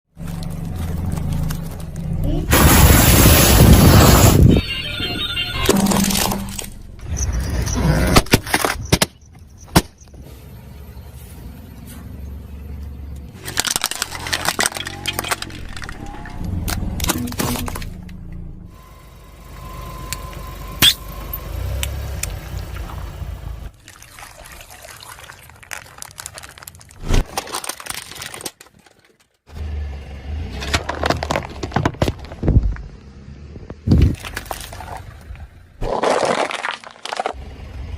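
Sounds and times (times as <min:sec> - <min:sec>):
car rumbling: 0:00.1 - 0:23.9, 0:29.5 - 0:36.0, 0:37.0 - 0:37.9
tyre crushing objects: 0:30.6 - 0:32.9, 0:35.8 - 0:37.4.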